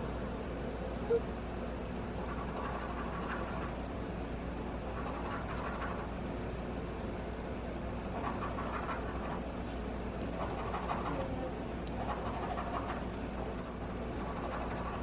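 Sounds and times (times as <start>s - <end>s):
scratch card rasping: 14.2s - 15.0s.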